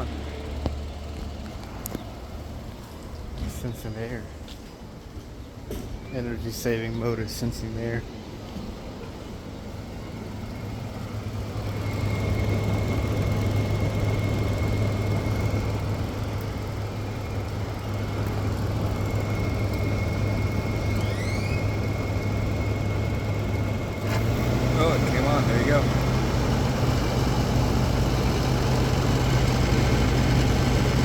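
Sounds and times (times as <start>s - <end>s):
thin high whine: 19.0s - 25.9s.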